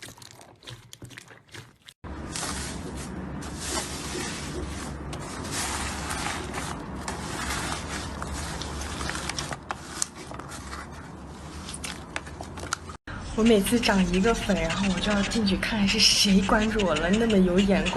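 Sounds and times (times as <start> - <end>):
slime squishing and crackling: 5.6 - 10.2.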